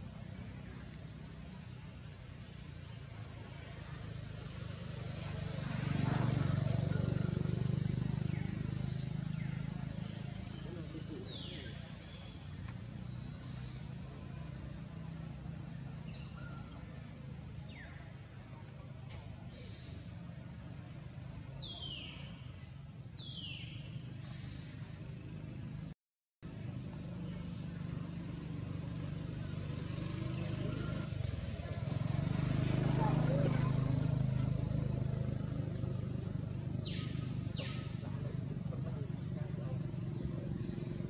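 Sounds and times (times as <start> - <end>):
bird chirps: 32.8 - 41.0.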